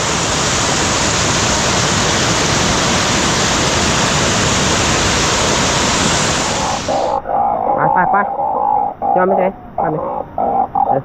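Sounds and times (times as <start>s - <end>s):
rushing storm water: 0.0s - 7.6s.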